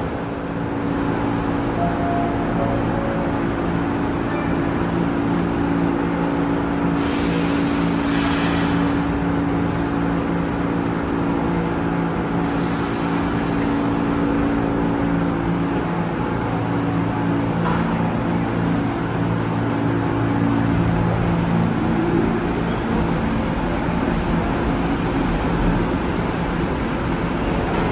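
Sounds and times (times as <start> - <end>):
subway train humming: 0.0 - 27.9.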